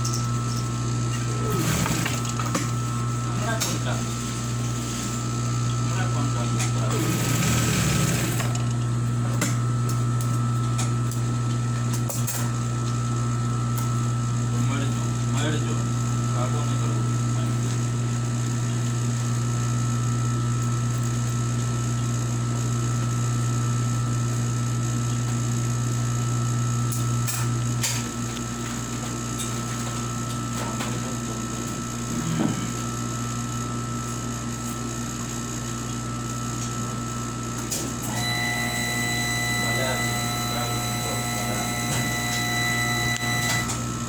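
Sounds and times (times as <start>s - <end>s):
sewing machine motor hum: 0.9s - 5.2s, 5.9s - 8.8s, 38.0s - 44.0s
clicks: 38.1s - 43.8s.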